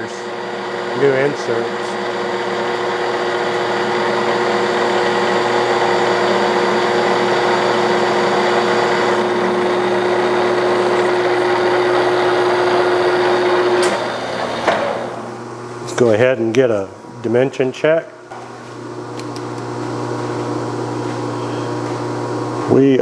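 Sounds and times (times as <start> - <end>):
metal lathe turning metal: 0.0 - 16.1.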